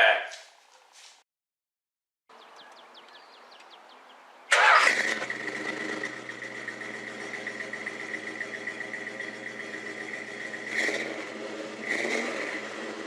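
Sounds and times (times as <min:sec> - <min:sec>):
car engine cranking and idling: 0:04.5 - 0:13.0.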